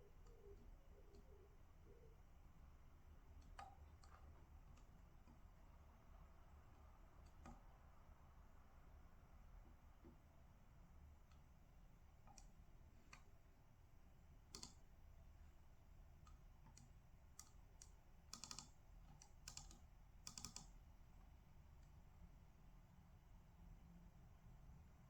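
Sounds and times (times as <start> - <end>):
low steady hum: 0.0 - 25.0
computer keyboard clicks: 14.5 - 14.9, 16.3 - 20.8.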